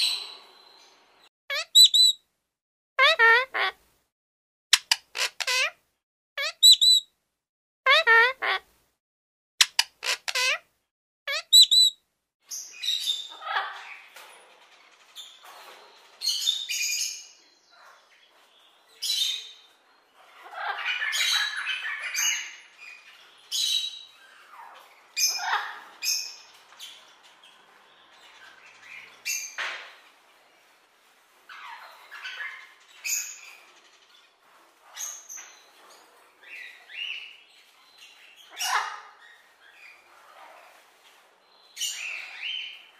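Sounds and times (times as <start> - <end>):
parrot whistling: 1.5 - 2.2
parrots squawking: 1.5 - 2.2, 3.0 - 3.8, 4.8 - 5.8, 6.4 - 7.0, 7.9 - 8.6, 9.6 - 10.6, 11.3 - 11.9, 13.0 - 14.1, 20.2 - 27.4, 31.5 - 35.2, 38.4 - 42.9.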